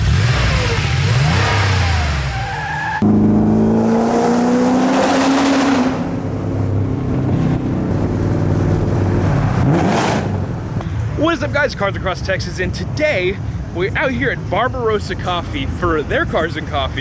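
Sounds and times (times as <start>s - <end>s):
car engine revving: 0.0s - 10.8s
engine pulling hard: 0.0s - 11.6s.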